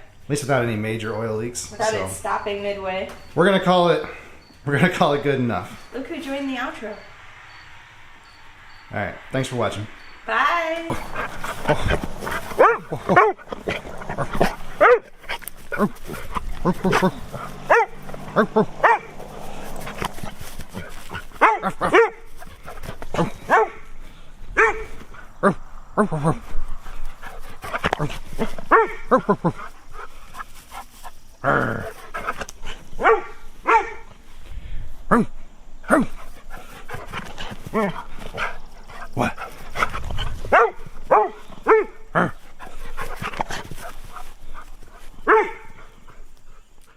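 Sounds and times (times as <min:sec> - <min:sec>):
dog barking: 0:11.0 - 0:15.9, 0:16.6 - 0:20.0, 0:20.8 - 0:22.5, 0:23.2 - 0:23.9, 0:24.6 - 0:25.6, 0:28.0 - 0:29.3, 0:33.0 - 0:34.2, 0:40.5 - 0:42.3, 0:45.2 - 0:45.8.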